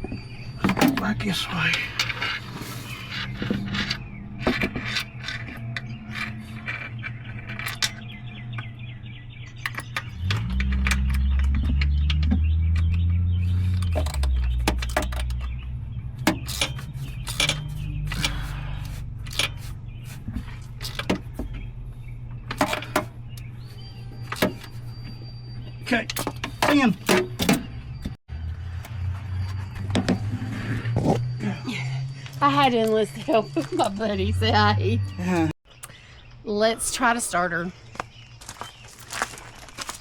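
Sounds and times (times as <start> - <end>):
vehicle engine running: 1.0 - 25.9, 27.7 - 35.6
clicks and rattles: 3.4 - 8.7, 13.7 - 15.6, 16.2 - 18.6.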